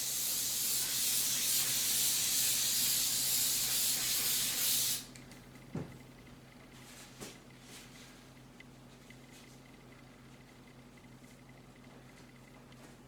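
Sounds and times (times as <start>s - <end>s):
aerosol spray hissing: 0.0s - 5.1s.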